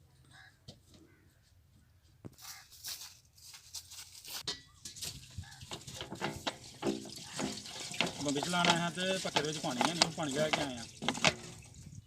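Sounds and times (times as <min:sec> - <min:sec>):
plastic bottles rattling: 0:04.8 - 0:12.0.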